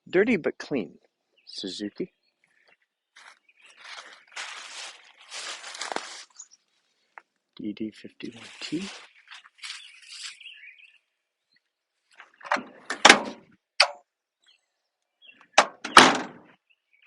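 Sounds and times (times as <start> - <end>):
faint bird chirps: 0.9 - 5.4, 6.2 - 6.8, 7.6 - 11.7
truck door latch clicks: 12.4 - 14.0, 15.6 - 16.4
truck door slamming: 12.5 - 13.4, 15.6 - 16.4.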